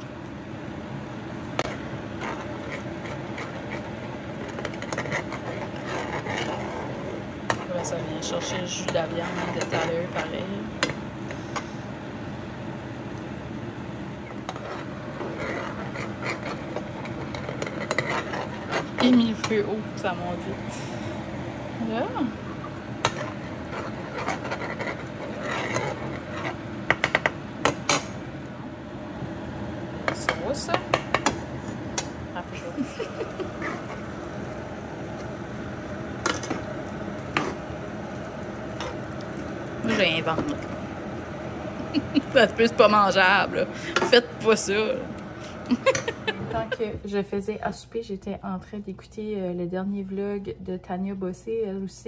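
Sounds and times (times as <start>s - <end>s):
sauce bubbling in a frying pan: 33.2s - 42.1s.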